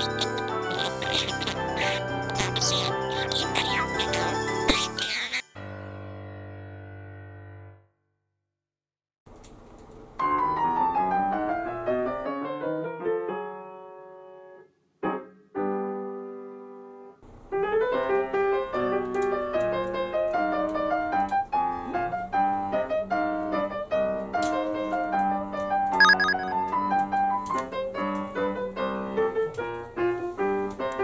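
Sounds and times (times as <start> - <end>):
piano music: 26.0 - 26.6.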